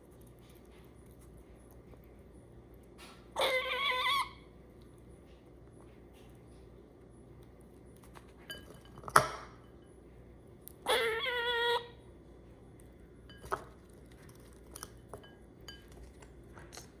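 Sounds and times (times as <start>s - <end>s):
squirrel wavering call: 3.4s - 4.4s, 10.9s - 12.0s.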